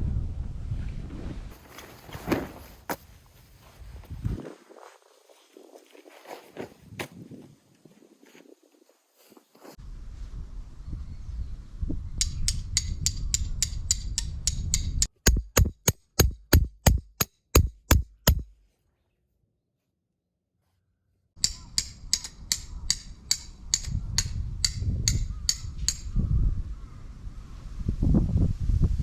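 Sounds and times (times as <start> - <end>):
hammer striking tent pegs: 15.0 - 18.6.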